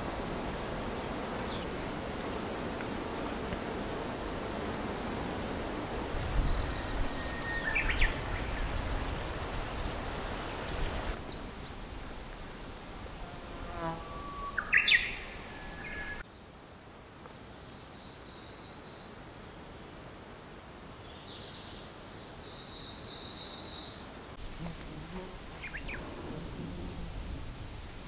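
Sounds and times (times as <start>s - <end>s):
faint insect buzzing: 0.0s - 16.2s, 24.4s - 28.0s
low wind rumble: 0.0s - 16.2s, 24.4s - 28.0s
songbird whistling: 6.5s - 8.3s, 14.0s - 16.2s.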